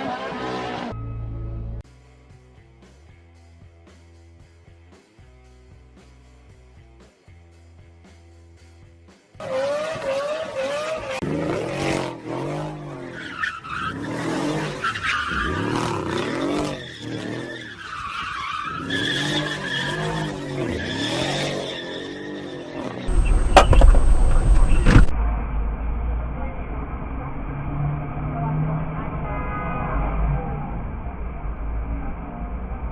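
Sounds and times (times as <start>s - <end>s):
car tyres squealing: 9.4s - 25.1s
car engine revving: 9.4s - 32.9s
deep rumble: 23.1s - 32.9s.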